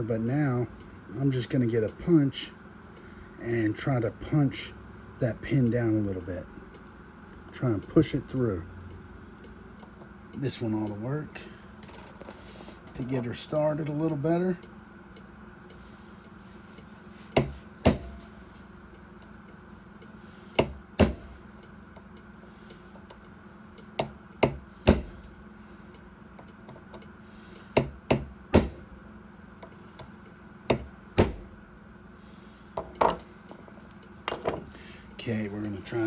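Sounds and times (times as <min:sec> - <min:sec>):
steady low hum: 0:00.0 - 0:36.0
hammer striking metal punch: 0:17.4 - 0:18.4, 0:20.6 - 0:21.4, 0:24.0 - 0:25.3, 0:27.8 - 0:28.9, 0:30.7 - 0:31.6.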